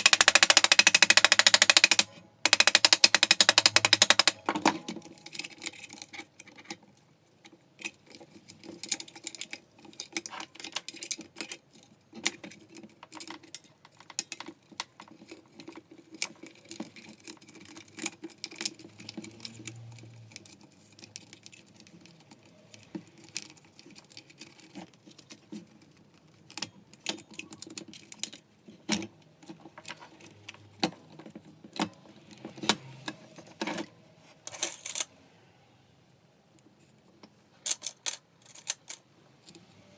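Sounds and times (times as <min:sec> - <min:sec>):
small hard parts clattering: 0:00.0 - 0:06.7, 0:34.5 - 0:35.1, 0:37.6 - 0:39.1.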